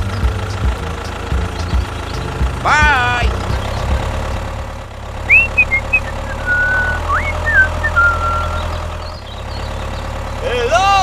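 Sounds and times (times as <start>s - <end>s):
low engine-like hum: 0.0s - 11.0s
short high whistling tones: 5.3s - 8.7s.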